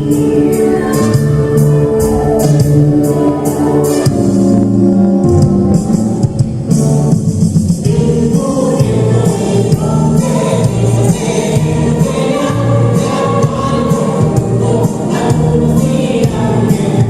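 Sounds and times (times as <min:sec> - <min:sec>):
choir singing: 0:00.0 - 0:04.4, 0:07.9 - 0:17.0
instrumental accompaniment: 0:00.0 - 0:17.0.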